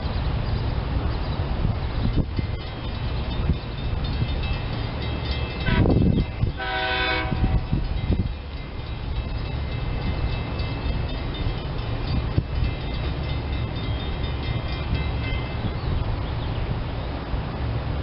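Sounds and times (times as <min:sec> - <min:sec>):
electric train rumbling past: 0:00.0 - 0:18.0
train horn blast: 0:05.6 - 0:07.8.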